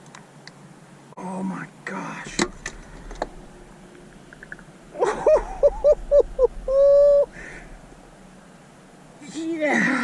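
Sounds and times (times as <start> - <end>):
bird calling: 2.6 - 8.4.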